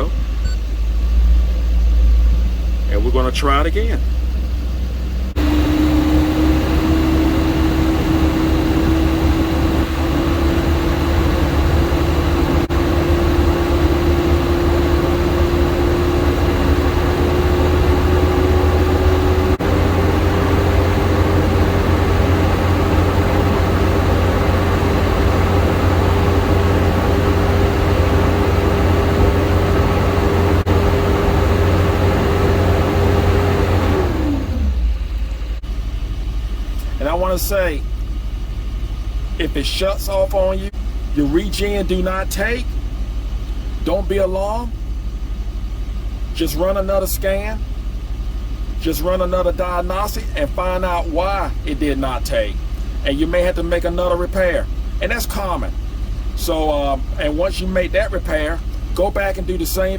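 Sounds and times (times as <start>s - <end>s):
diesel engine idling: 0.0s - 59.9s
engine whine rising in pitch: 0.0s - 59.9s.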